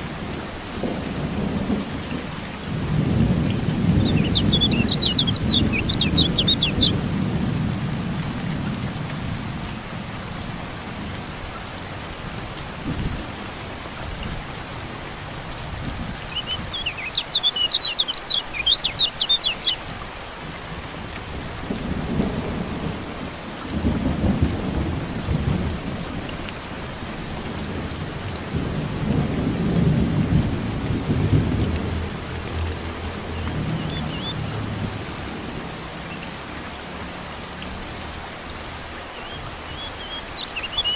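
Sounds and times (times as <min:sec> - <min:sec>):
steady rain: 0:00.0 - 0:40.9
thunder rumbling: 0:00.6 - 0:10.2, 0:21.3 - 0:36.0
bird twittering chirps: 0:04.0 - 0:07.0, 0:15.3 - 0:19.8, 0:33.4 - 0:34.4, 0:39.1 - 0:40.9.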